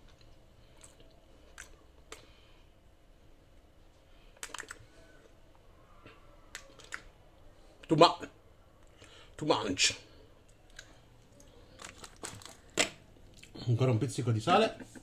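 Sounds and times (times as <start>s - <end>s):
quiet chewing with lip smacks: 0.0s - 2.5s, 10.4s - 12.3s.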